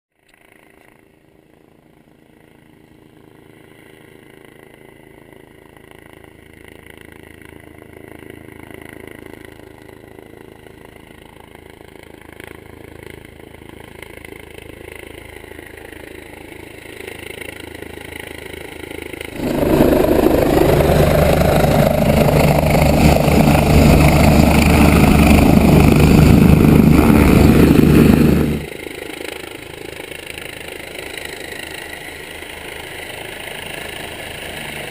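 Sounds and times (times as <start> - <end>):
helicopter engine and rotors: 0.1 - 34.9
dense rush of noise: 19.3 - 28.7.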